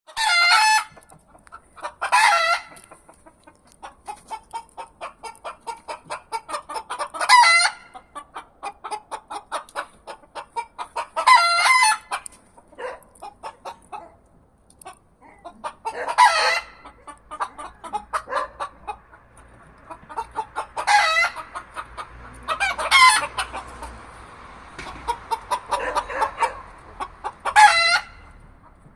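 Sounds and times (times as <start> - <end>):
roosters crowing: 0.1 - 1.0, 1.8 - 2.9, 7.1 - 7.9, 11.2 - 12.2, 15.8 - 19.0, 20.1 - 28.4
chickens clucking rapidly: 0.1 - 28.9.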